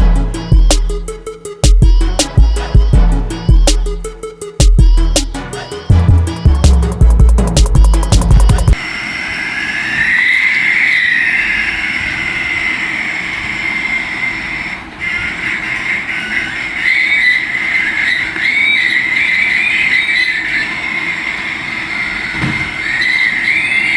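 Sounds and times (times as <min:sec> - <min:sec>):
background music: 0:00.0 - 0:08.8
toy electric motor whining: 0:08.7 - 0:23.9.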